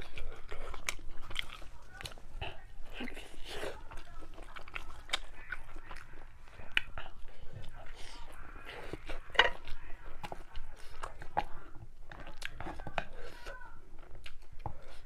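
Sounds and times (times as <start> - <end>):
chewing with wet mouth clicks: 0.0 - 15.0.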